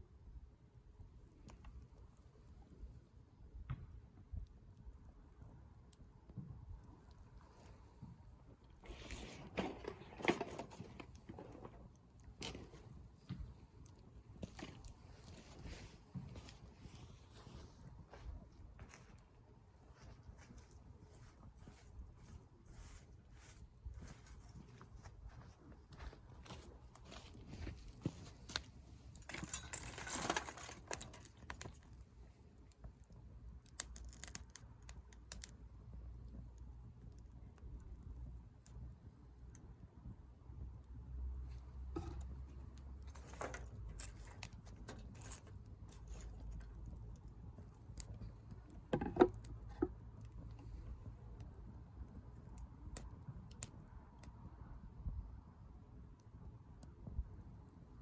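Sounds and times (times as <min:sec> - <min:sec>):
wood fire crackling: 0:00.1 - 0:58.0
crinkling rustle: 0:08.8 - 0:19.3, 0:19.9 - 0:35.5, 0:41.9 - 0:50.9.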